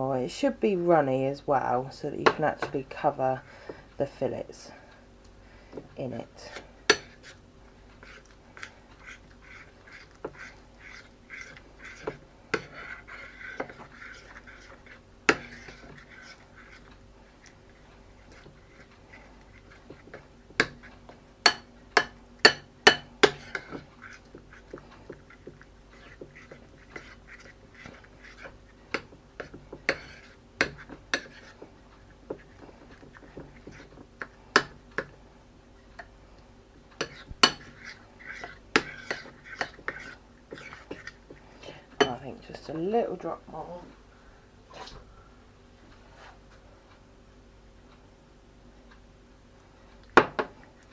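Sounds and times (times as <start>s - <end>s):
faint steady hum: 0.0s - 50.9s
utensil stirring thick batter: 0.1s - 43.9s
utensil tapping against bowl: 19.9s - 28.1s.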